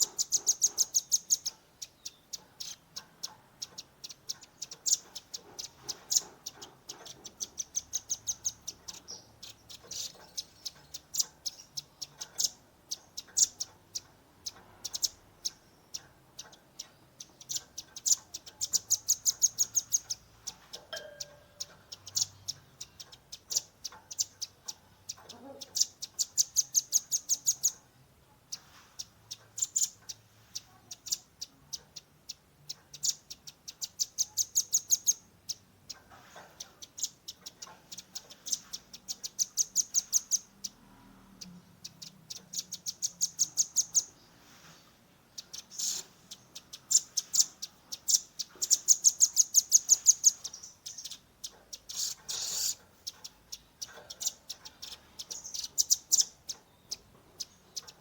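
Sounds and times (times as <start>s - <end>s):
bird chipping call: 20.9s - 22.3s, 51.9s - 52.8s.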